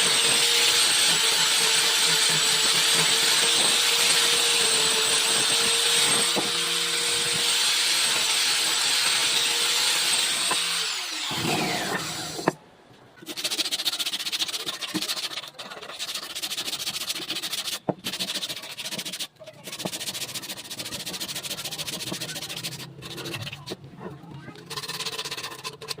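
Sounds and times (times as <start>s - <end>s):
power tool motor running: 0.0s - 12.6s
rubbing against wood: 13.2s - 26.0s.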